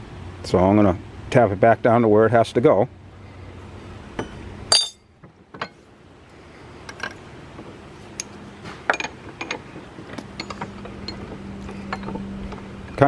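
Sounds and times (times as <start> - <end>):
metal clinks and knocks: 4.2 - 5.8, 6.9 - 7.2, 8.1 - 13.0.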